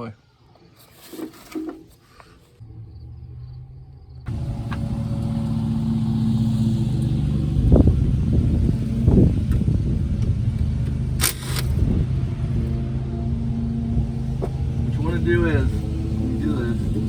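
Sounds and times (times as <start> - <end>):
car engine idling: 2.6 - 17.0.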